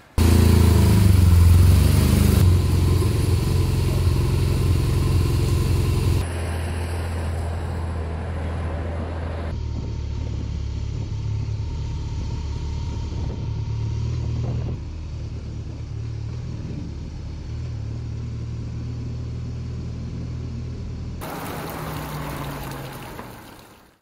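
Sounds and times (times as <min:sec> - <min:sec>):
motorcycle engine rumbling: 0:00.0 - 0:06.3, 0:21.2 - 0:23.9.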